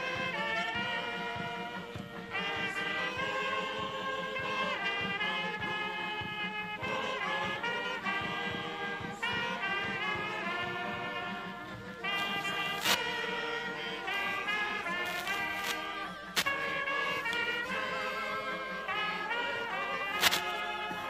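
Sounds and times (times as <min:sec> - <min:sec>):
brass band playing slow chords: 0:00.0 - 0:21.0.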